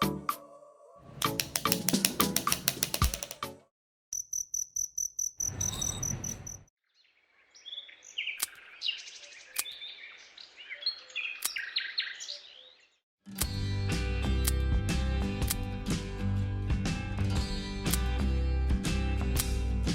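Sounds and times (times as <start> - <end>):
sharp clicks: 1.2 - 3.5
pulsing high cricket-like chirp: 4.2 - 6.7
small birds chirping and twittering: 5.4 - 13.0.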